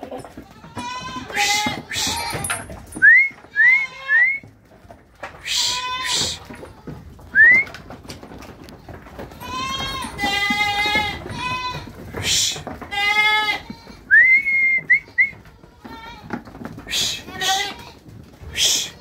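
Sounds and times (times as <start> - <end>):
goats bleating: 0.2 - 2.7, 3.5 - 4.4, 5.4 - 7.0, 9.3 - 14.2, 15.4 - 19.0.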